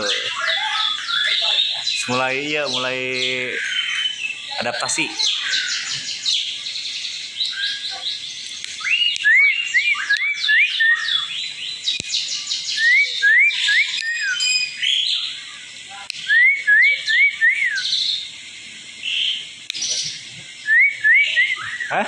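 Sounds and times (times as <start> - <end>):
starling whistling song: 0.0 - 22.0.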